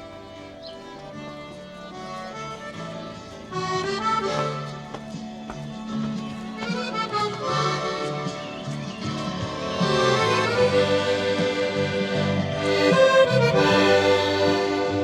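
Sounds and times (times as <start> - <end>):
accordion music: 0.0 - 15.0.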